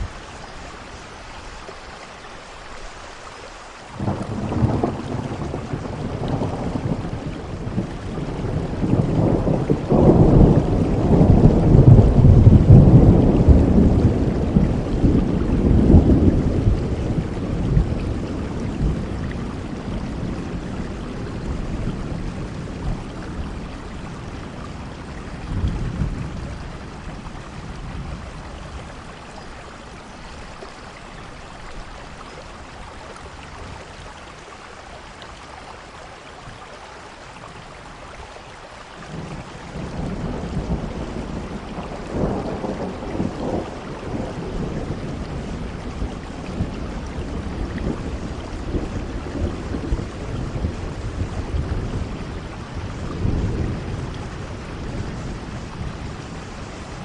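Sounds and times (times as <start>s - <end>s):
steady rainfall: 0.0s - 57.0s
rolling thunder: 4.0s - 29.5s, 39.1s - 57.0s.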